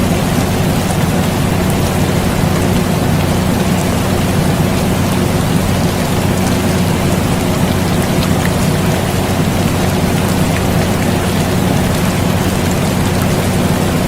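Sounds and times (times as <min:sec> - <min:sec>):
air conditioner hum: 0:00.0 - 0:14.0
rain hissing and pattering: 0:00.0 - 0:14.0.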